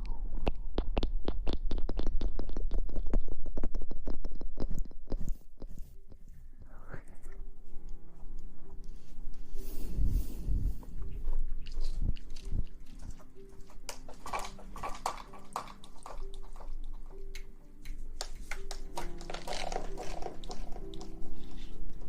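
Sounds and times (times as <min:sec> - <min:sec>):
close-miked rustling and crackling: 0:00.3 - 0:22.0
soft background music tones: 0:05.1 - 0:22.0.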